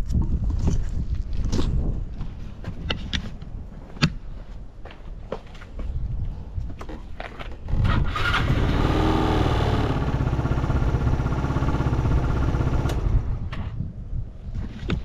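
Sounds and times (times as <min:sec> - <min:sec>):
scooter engine starting and idling: 0:07.7 - 0:13.7.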